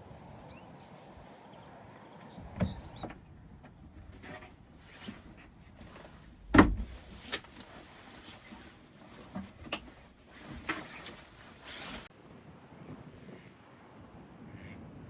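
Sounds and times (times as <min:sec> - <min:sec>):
loud deep thump: 0:06.4 - 0:07.1.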